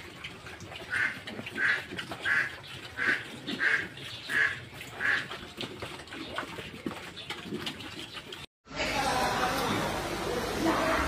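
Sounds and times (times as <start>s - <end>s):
farm animal calls: 0.8s - 5.4s.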